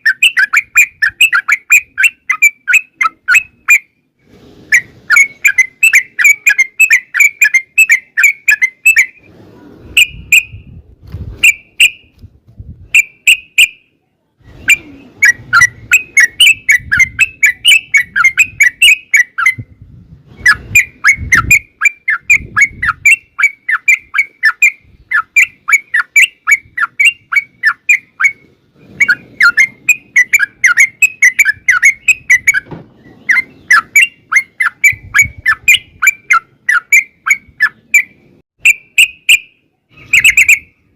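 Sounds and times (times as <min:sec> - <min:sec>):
bird singing bubbly chattering notes: 0:04.7 - 0:09.2, 0:14.6 - 0:19.7, 0:20.4 - 0:28.4, 0:29.0 - 0:39.4.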